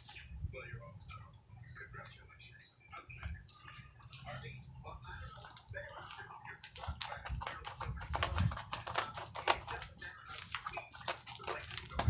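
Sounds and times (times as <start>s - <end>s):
package clicks and crackles: 5.3s - 12.0s.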